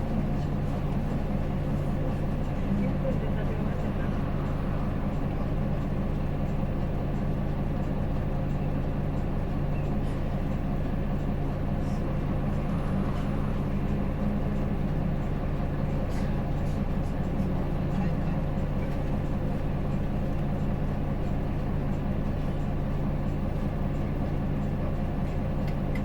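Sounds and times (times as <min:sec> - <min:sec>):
bus engine hum: 0:00.0 - 0:26.0
road and body noise: 0:00.3 - 0:08.5, 0:11.2 - 0:17.6.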